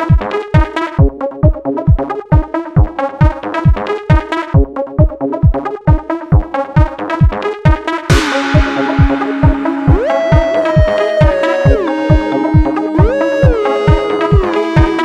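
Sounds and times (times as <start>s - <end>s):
steady kick drum: 0.0s - 15.0s
repeating synthesizer chords: 7.5s - 15.0s.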